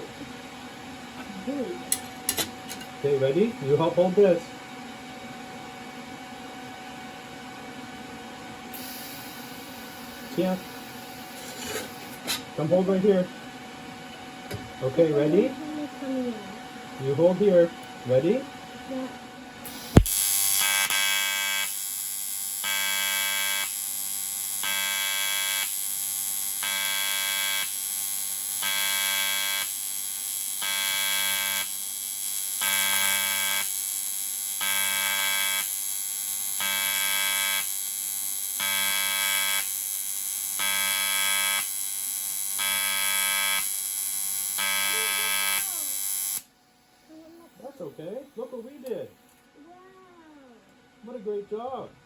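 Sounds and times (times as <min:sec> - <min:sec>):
welding arc buzzing: 0:08.7 - 0:12.4, 0:19.6 - 0:46.5
sharp click of arc striking: 0:19.7 - 0:20.3.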